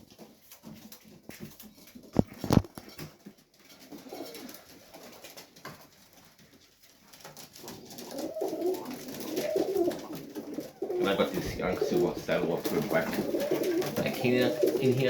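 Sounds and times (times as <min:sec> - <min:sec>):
pigeons cooing: 0:03.8 - 0:05.5, 0:07.6 - 0:15.0.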